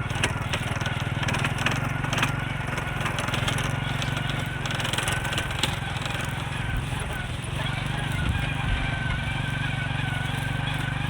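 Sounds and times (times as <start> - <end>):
engine running with low pulse: 0.0 - 11.0.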